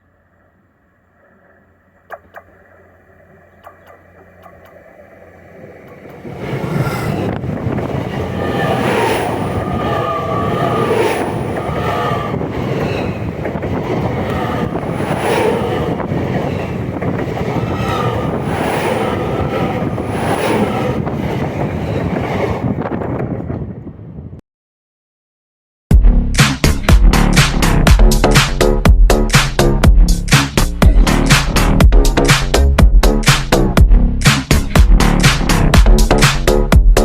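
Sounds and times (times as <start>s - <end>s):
train wheels rushing and clattering: 5.9s - 23.7s.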